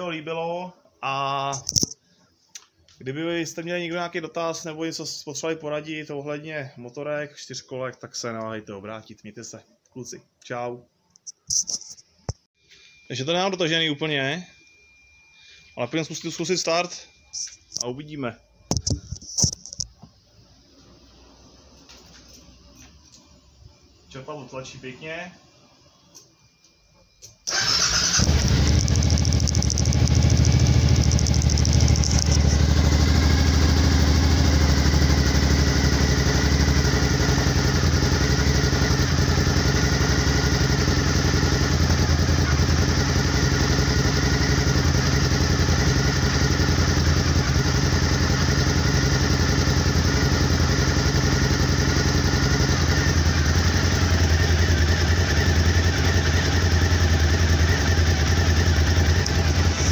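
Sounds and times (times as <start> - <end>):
motorcycle engine idling: 27.5 - 59.9.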